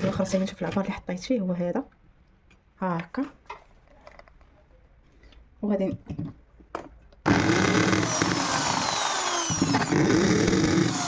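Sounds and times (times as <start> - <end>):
electric drill drilling into wall: 7.3 - 11.0.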